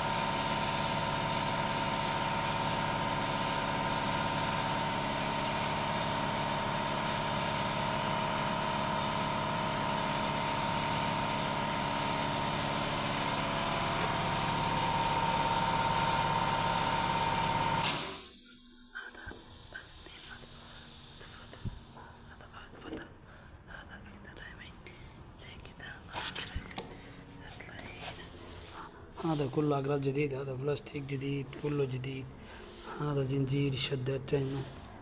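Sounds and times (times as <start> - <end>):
car engine idling with whine: 0.0 - 22.5
faint hiss: 17.9 - 22.8.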